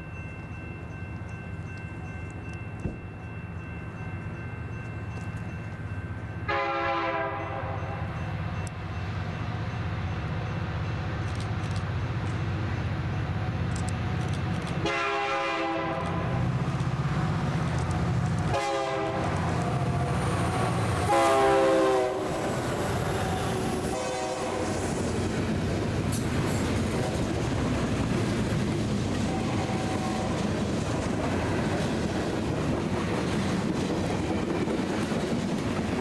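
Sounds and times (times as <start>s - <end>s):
diesel locomotive rumbling: 0.0s - 36.0s
locomotive air horn: 6.5s - 7.8s, 14.8s - 16.5s, 18.5s - 19.4s, 21.0s - 22.4s, 23.8s - 24.8s, 29.3s - 30.5s.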